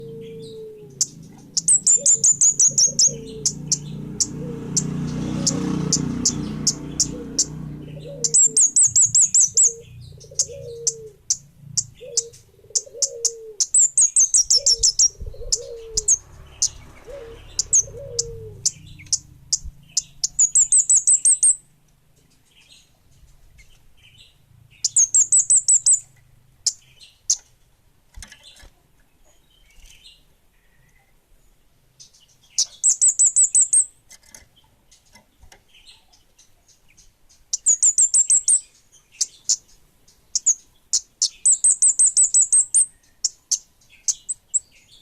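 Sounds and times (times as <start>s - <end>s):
fast high bird trills: 0.0s - 21.7s, 24.7s - 26.9s
lower falling bird calls: 0.0s - 27.5s, 32.0s - 45.0s
songbird chirping: 0.0s - 45.0s.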